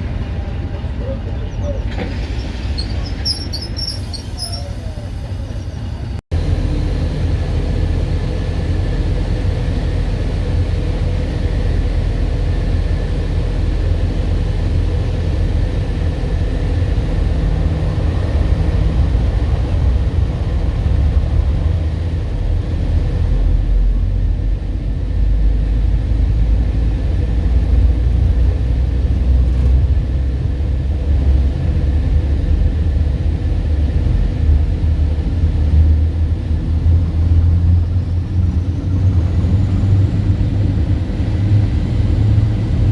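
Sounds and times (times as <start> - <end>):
diesel locomotive engine rumbling: 0.0 - 42.9.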